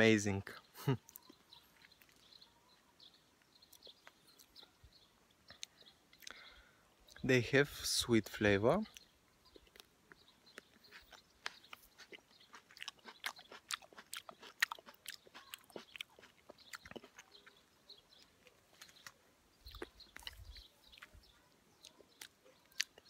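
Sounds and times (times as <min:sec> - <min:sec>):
chewing with wet mouth clicks: 0:01.0 - 0:02.4, 0:03.4 - 0:04.7, 0:05.4 - 0:06.4, 0:08.9 - 0:23.0.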